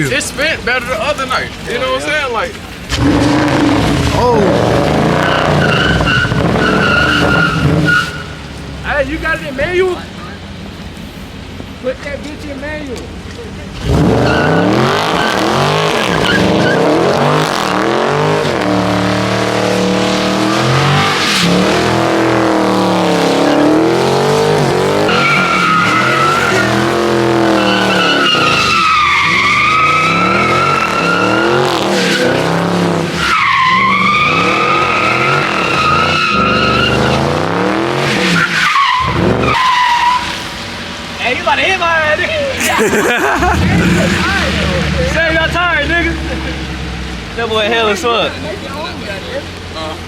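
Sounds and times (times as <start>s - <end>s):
tyres squealing: 2.4s - 10.5s, 13.7s - 40.6s
car engine revving hard: 2.9s - 8.4s, 13.7s - 40.5s, 42.9s - 47.5s.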